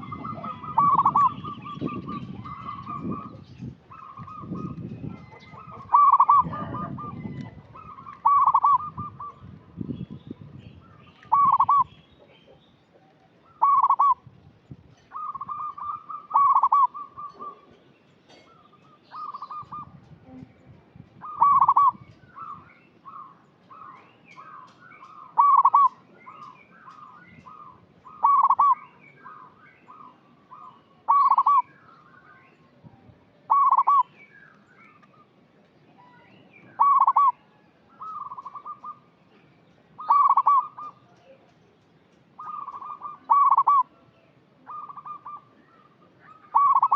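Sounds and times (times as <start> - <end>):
dove cooing: 0.0 - 9.6, 11.2 - 11.9, 13.4 - 14.2, 15.1 - 17.7, 18.3 - 20.0, 21.2 - 31.7, 33.5 - 34.1, 36.7 - 37.4, 38.0 - 39.0, 40.0 - 41.0, 42.4 - 44.0, 44.6 - 46.9.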